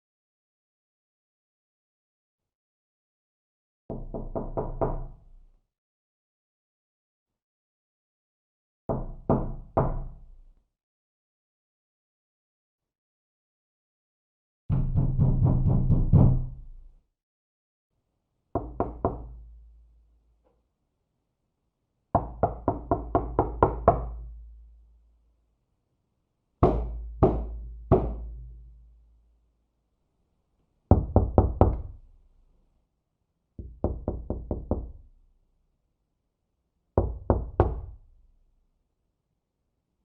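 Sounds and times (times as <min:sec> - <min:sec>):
knocking on a door: 0:03.9 - 0:05.2, 0:08.9 - 0:10.2, 0:14.7 - 0:16.7, 0:18.6 - 0:19.4, 0:22.2 - 0:24.2, 0:26.6 - 0:28.5, 0:30.9 - 0:32.0, 0:33.6 - 0:35.1, 0:37.0 - 0:38.0.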